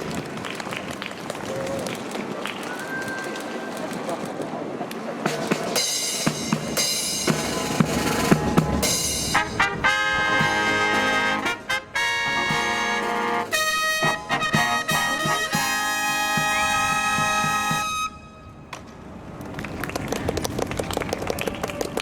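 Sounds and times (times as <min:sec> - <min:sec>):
drum strokes: 0:05.2 - 0:18.2
brass chords: 0:06.3 - 0:18.6.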